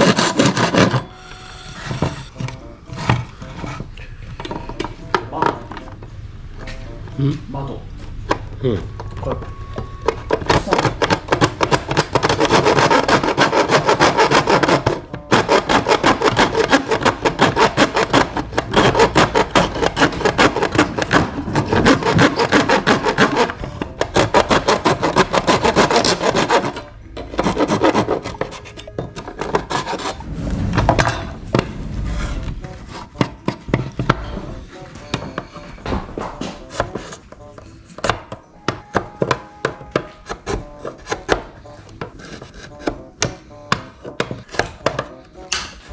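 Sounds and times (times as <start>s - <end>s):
file rasping strokes: 0.0s - 30.3s.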